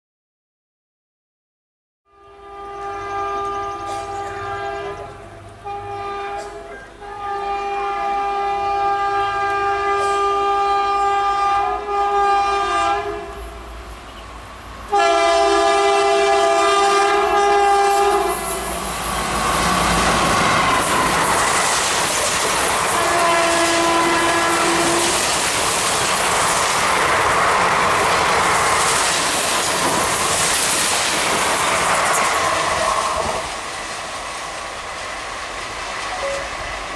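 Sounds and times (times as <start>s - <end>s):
locomotive horn blasts: 2.1s - 14.2s, 14.9s - 18.6s, 22.9s - 25.2s
train passing with loud rush: 2.1s - 36.9s
wheels clacking over rail joints: 18.2s - 36.9s.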